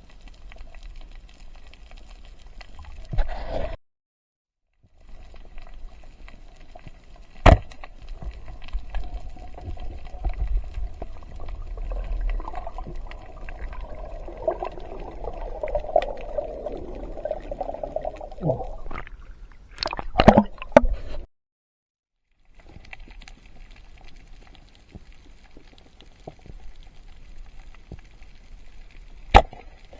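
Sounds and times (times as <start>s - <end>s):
water sloshing and gurgling: 5.2s - 21.3s.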